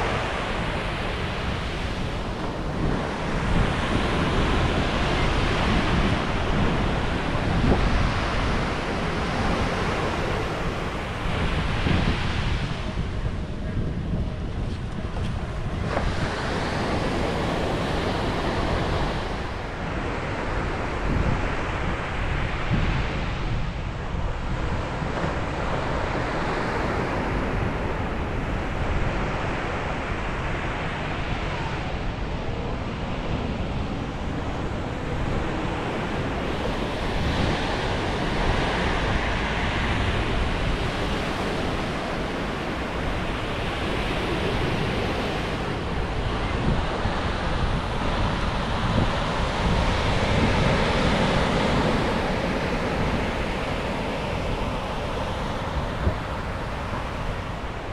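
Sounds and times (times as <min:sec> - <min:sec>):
ocean waves breaking on beach: 0:00.0 - 0:57.9
wind rumbling on microphone: 0:00.0 - 0:57.9.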